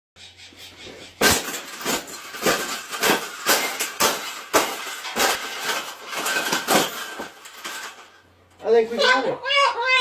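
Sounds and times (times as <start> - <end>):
wire cage banging and rattling: 1.1 - 8.2.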